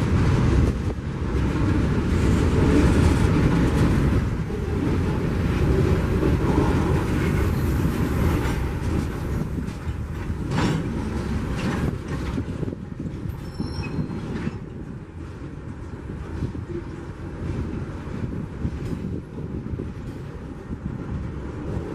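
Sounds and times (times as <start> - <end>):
sharp clacks of wheels: 0.0 - 21.9
train wheels rumbling on rail: 0.0 - 21.9.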